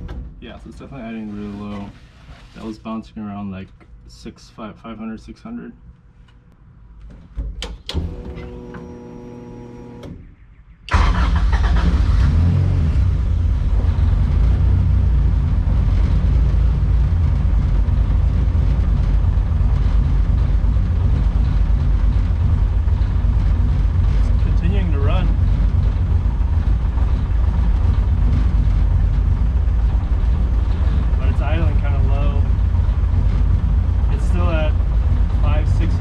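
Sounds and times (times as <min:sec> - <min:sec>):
car engine starting and running: 0:07.6 - 0:36.0
steady hum: 0:13.1 - 0:36.0.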